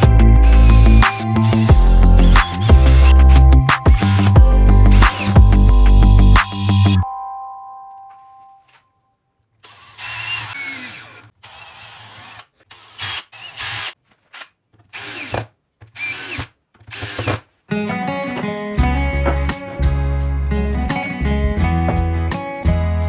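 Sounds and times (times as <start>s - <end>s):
power tool bursts: 0.0s - 5.6s, 9.6s - 13.9s
background music: 0.0s - 8.6s, 17.7s - 23.0s.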